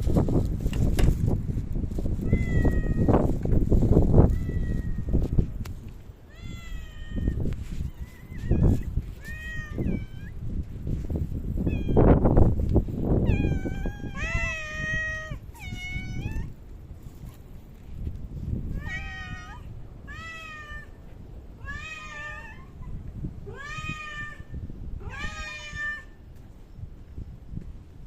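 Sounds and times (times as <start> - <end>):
cat meowing: 2.2 - 3.1, 4.3 - 5.2, 6.3 - 10.4, 11.6 - 12.1, 13.2 - 16.5, 18.7 - 21.0, 21.6 - 26.2.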